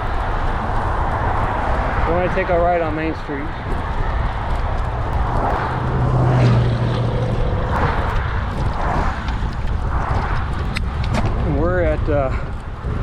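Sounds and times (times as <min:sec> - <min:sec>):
passing motor vehicle hum: 0:00.0 - 0:11.4
road noise while cycling: 0:00.0 - 0:13.0
wind buffeting microphone: 0:00.0 - 0:13.0.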